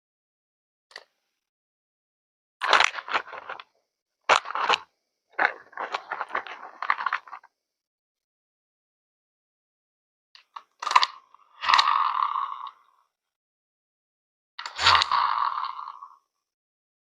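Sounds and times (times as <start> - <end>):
crunching and crackling handling noise: 2.6 - 3.7, 4.3 - 7.5.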